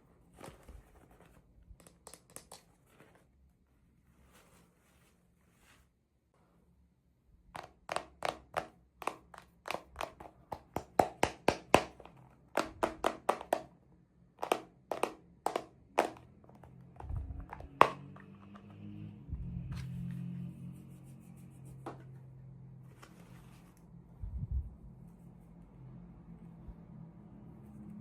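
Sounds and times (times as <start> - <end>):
toy pieces tapping and clicking: 1.8 - 2.7, 7.6 - 13.7, 14.4 - 18.8.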